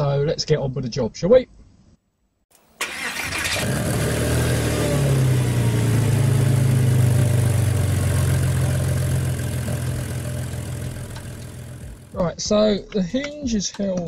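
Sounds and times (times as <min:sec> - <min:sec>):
car engine starting and idling: 0:02.6 - 0:12.2.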